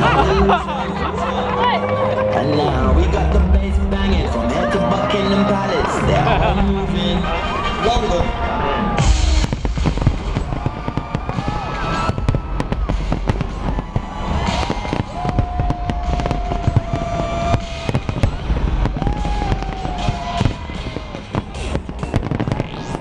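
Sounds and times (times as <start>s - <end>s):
loud music with heavy bass: 0.0s - 23.0s
fireworks bangs and crackling: 2.3s - 23.0s.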